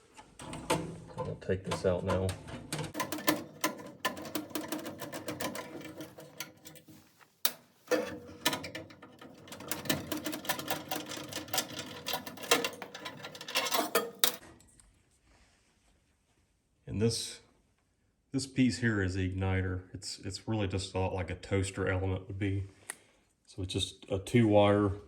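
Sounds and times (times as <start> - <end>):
tools and metal parts rattling: 1.7 - 14.5.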